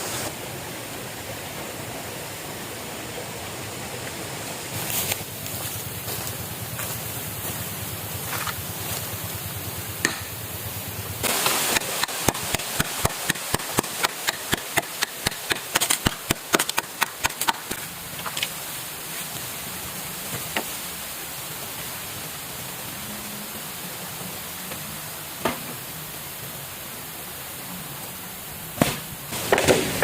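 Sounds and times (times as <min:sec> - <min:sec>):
blade chopping into wood: 0:10.0 - 0:10.3.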